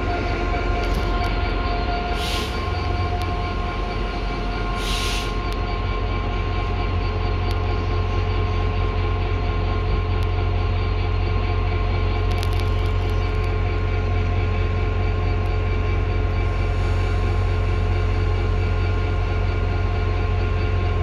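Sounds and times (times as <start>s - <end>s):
diesel train engine rumbling: 0.0s - 21.0s
air hiss: 2.2s - 2.6s, 4.8s - 5.4s.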